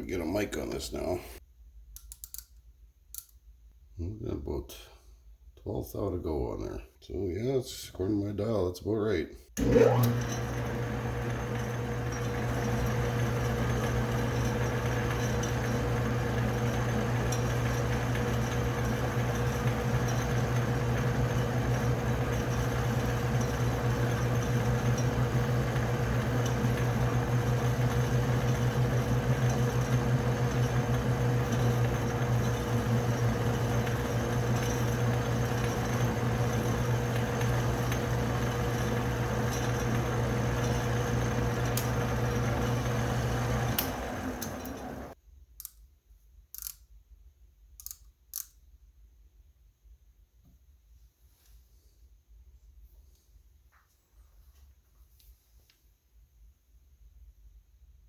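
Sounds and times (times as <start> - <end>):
metal lathe motor hum: 9.6 - 45.2.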